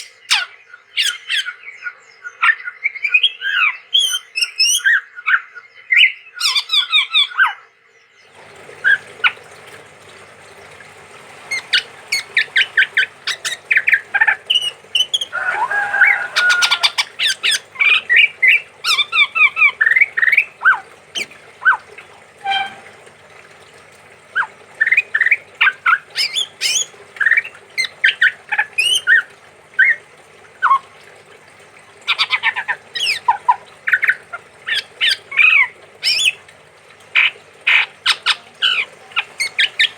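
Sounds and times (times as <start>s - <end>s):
bird chirping and calling: 0.0s - 1.6s, 11.5s - 21.8s, 24.3s - 30.0s, 32.1s - 36.4s, 37.2s - 39.9s
faint steady hum: 7.9s - 39.9s.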